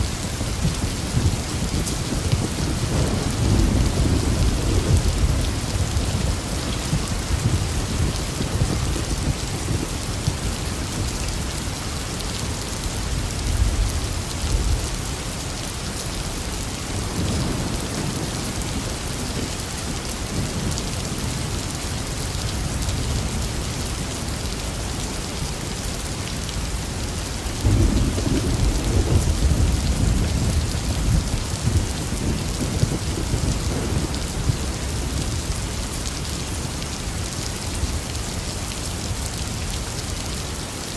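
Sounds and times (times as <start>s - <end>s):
thunder rumbling: 0.0s - 11.1s, 27.6s - 36.1s
heavy rain falling: 0.0s - 40.9s.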